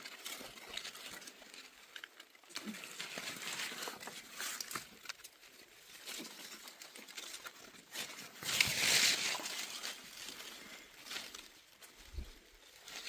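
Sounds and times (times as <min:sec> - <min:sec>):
rustling and crackling: 0:00.0 - 0:13.0.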